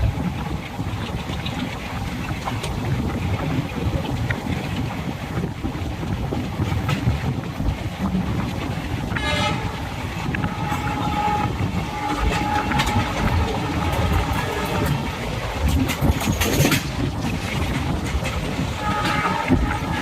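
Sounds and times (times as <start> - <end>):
train wheels rumbling on track: 0.0 - 20.0
train horn: 9.1 - 15.4, 18.7 - 20.0.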